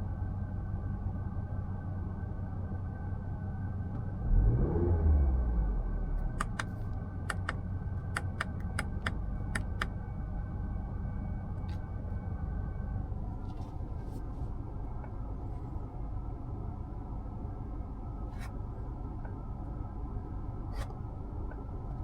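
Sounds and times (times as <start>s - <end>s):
car engine rumble inside cabin: 0.0s - 22.0s
sharp clicks: 6.4s - 7.6s, 8.2s - 9.9s.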